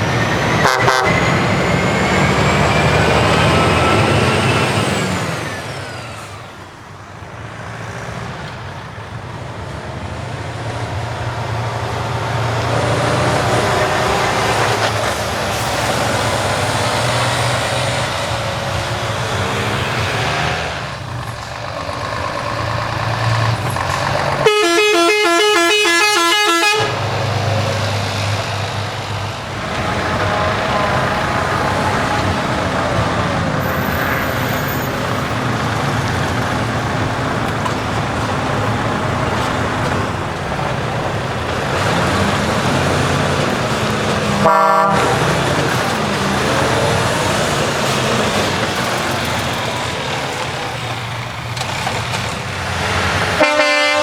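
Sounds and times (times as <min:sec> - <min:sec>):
loud truck horn: 0:00.0 - 0:05.5, 0:12.4 - 0:27.9, 0:29.4 - 0:51.8, 0:52.5 - 0:54.0
heavy truck engines passing: 0:00.0 - 0:54.0.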